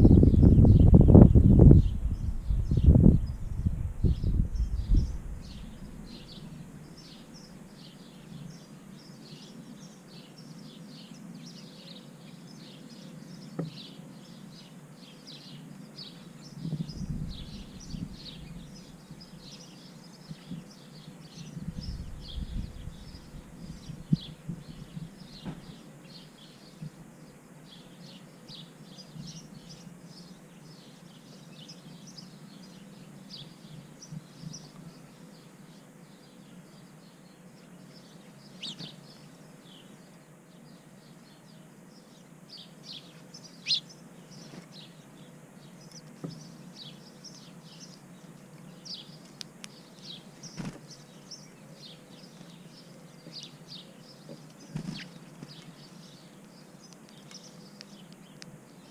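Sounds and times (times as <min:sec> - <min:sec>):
low rumbles: 0:00.0 - 0:07.0
small birds chirping: 0:00.0 - 0:58.9.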